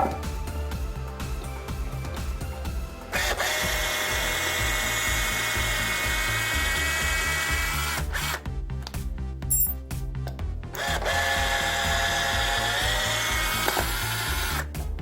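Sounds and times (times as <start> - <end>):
background music: 0.0 - 15.0
cordless drill motor whining: 2.9 - 8.4, 10.8 - 14.8.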